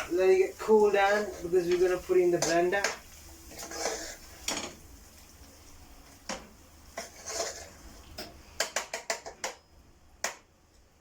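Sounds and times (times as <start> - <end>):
utensils and cookware knocking: 7.0 - 10.5.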